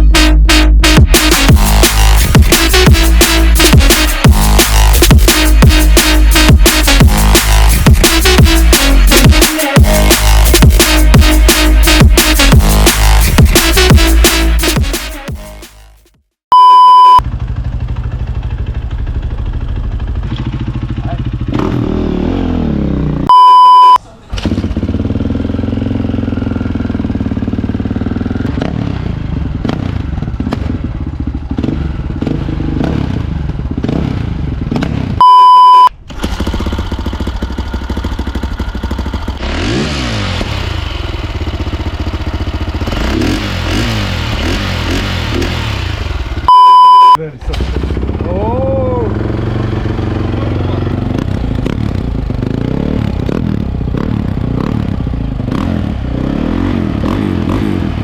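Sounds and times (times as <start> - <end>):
motorcycle engine revving: 0.0 - 15.7, 16.9 - 58.0
loud electronic beeps: 16.5 - 17.2, 23.3 - 24.0, 35.2 - 36.0, 46.4 - 47.2.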